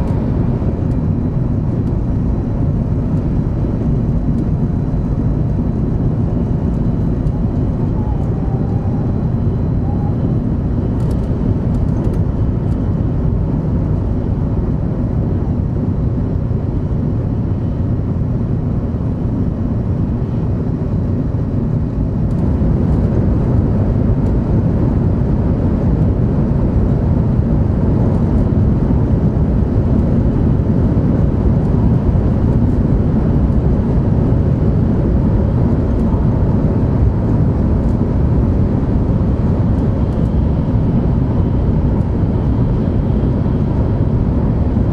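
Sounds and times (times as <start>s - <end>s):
train running rumble inside cabin: 0.0s - 44.9s.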